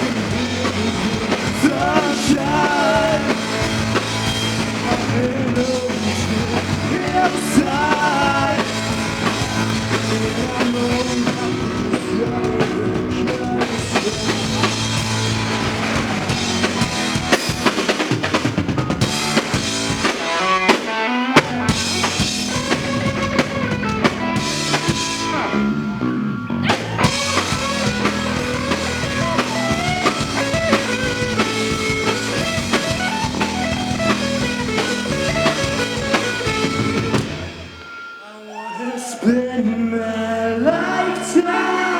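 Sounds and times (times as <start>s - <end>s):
bass guitar: 0.0s - 37.8s
drum kit: 0.0s - 38.2s
electric guitar: 0.0s - 38.2s.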